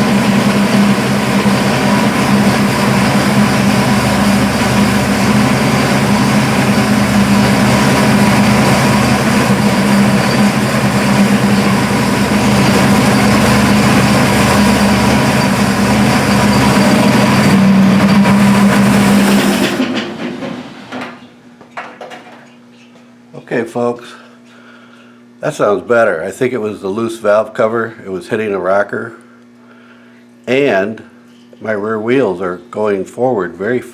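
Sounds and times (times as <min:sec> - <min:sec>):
car engine running: 0:00.0 - 0:19.7.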